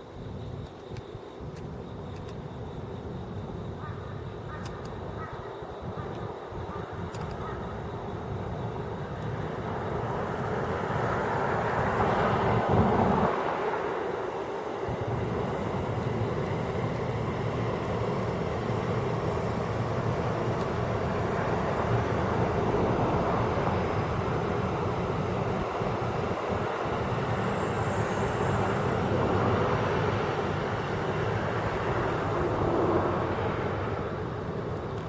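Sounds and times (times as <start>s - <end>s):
passing vehicle rumble: 10.0s - 13.9s, 28.2s - 34.5s.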